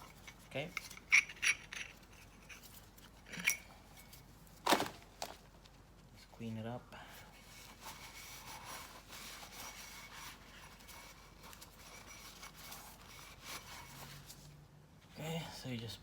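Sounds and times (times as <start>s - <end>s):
cloth rag rubbing: 7.3s - 14.5s.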